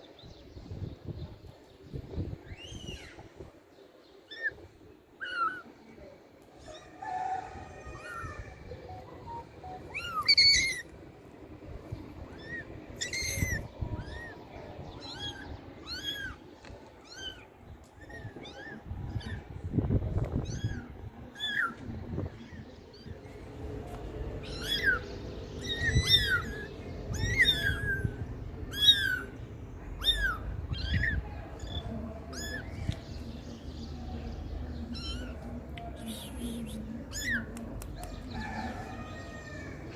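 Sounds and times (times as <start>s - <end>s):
kittens mewing: 24.4s - 32.8s, 34.8s - 35.5s.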